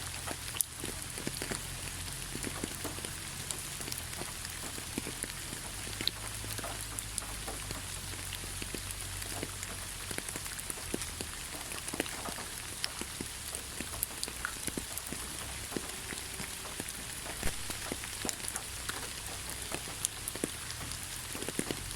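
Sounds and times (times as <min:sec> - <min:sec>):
steady rain falling: 0:00.0 - 0:21.9
drops ticking: 0:00.1 - 0:21.9.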